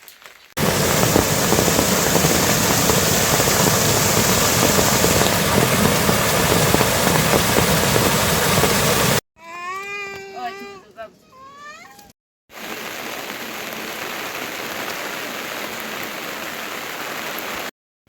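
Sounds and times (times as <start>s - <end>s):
loud rushing noise: 0.6s - 9.2s.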